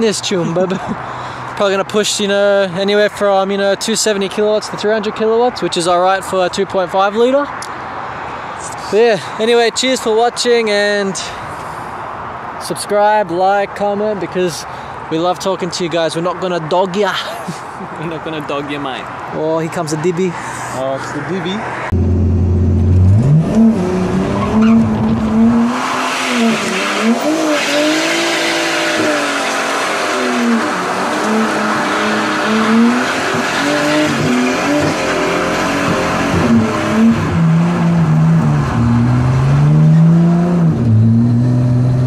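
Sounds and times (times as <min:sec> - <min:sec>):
car engine revving: 0:21.1 - 0:42.0
tyre squeal: 0:24.3 - 0:29.6.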